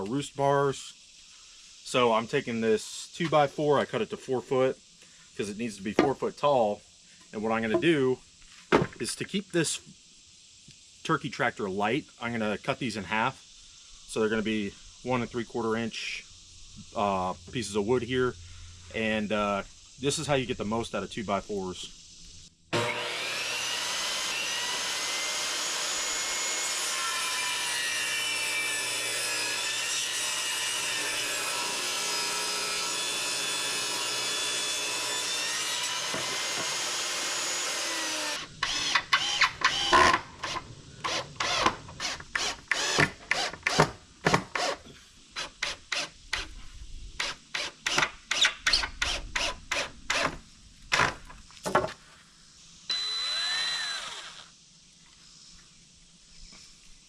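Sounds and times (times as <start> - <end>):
power saw cutting wood: 22.7 - 44.8, 52.9 - 54.5
wooden knocks and clatters: 50.9 - 52.0.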